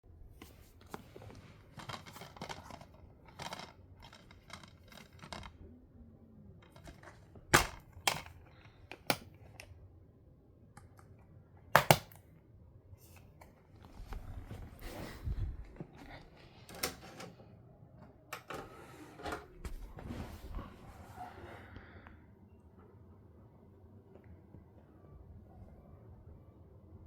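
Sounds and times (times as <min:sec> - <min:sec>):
rustling and scraping: 0:00.4 - 0:05.6, 0:13.0 - 0:17.4, 0:18.4 - 0:21.5.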